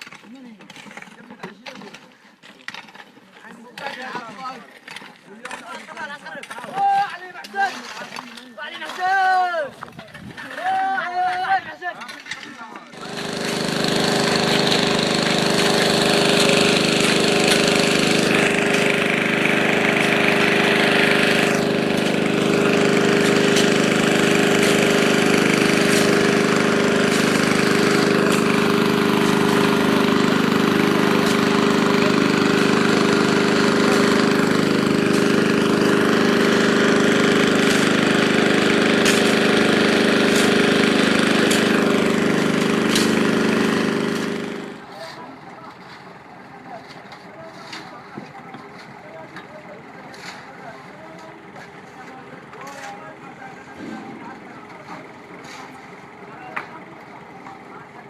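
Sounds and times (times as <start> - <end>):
heavy machine engine under load: 12.8 - 58.0.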